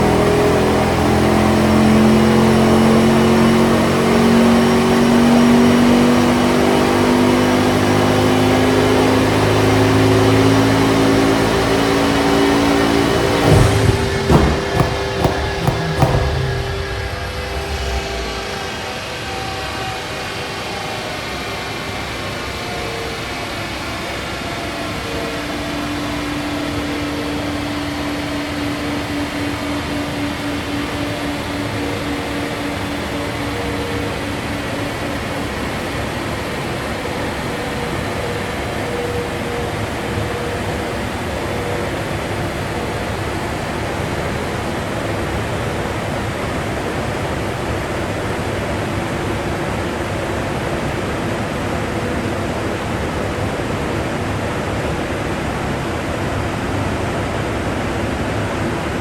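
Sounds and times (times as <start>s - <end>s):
cooling fan blowing air: 0.0s - 18.9s.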